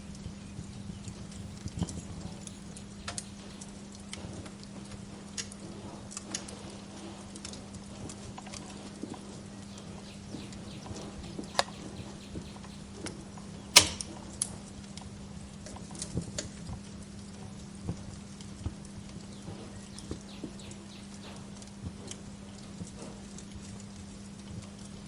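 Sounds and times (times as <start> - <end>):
steady low hum: 0.0 - 5.2, 9.1 - 14.7
wood fire crackling: 0.0 - 25.0.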